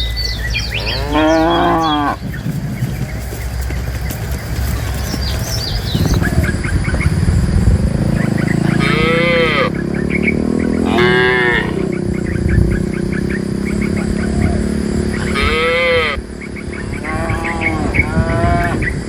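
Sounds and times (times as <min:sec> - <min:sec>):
birds chirping faintly: 0:00.0 - 0:19.0
cattle mooing: 0:00.5 - 0:02.6, 0:08.5 - 0:09.8, 0:10.7 - 0:11.9, 0:13.6 - 0:18.9.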